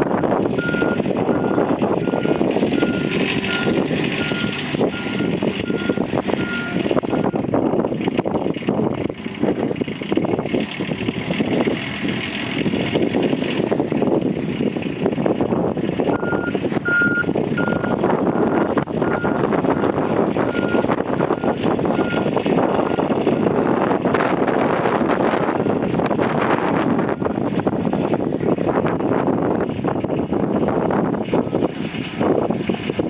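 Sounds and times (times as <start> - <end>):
utility vehicle engine running: 0.0 - 33.0
backup alarm beeping: 16.1 - 23.1.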